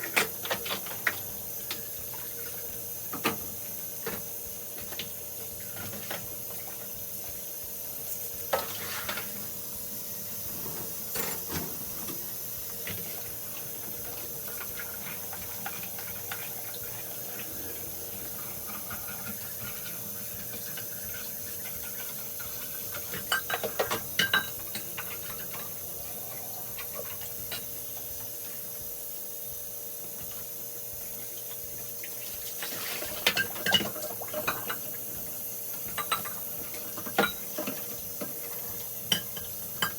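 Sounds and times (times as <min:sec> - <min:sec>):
dishes and cutlery clattering: 0:10.6 - 0:12.2, 0:21.7 - 0:25.7, 0:32.6 - 0:34.9, 0:35.9 - 0:39.9.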